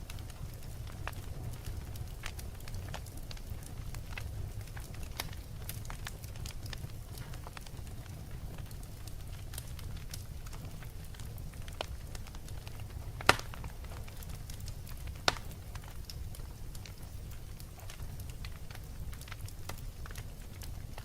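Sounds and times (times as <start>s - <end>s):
fire crackling: 0.0s - 21.0s
loud sharp pops: 13.2s - 13.6s.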